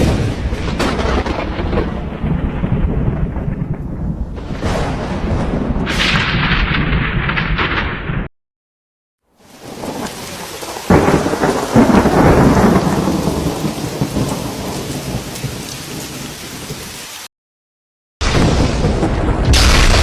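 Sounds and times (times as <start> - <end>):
thunderclap rolling into rumble: 0.0 - 8.3, 9.5 - 16.3, 18.2 - 20.0
steady rain: 9.3 - 17.3, 18.2 - 20.0.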